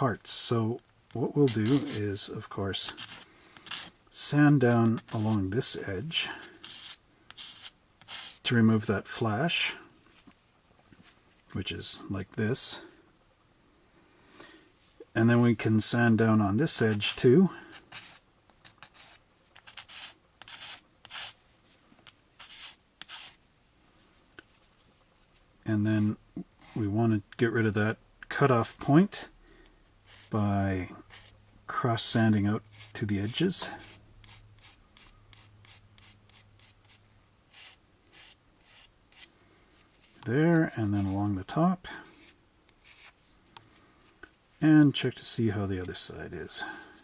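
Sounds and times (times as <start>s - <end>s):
sanding plastic part: 17.7s - 21.4s, 22.0s - 23.4s.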